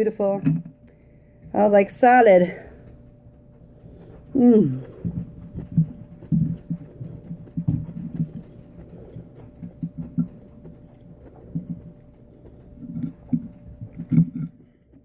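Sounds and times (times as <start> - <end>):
faint steady hum: 0.0 - 15.0
chewing salad: 3.6 - 14.8.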